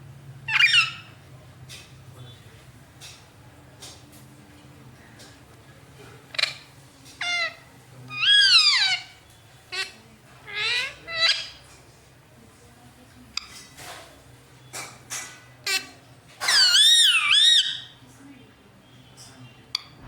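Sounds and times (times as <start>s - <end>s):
parrot calling: 0.4s - 1.3s, 6.2s - 11.8s, 15.0s - 18.0s.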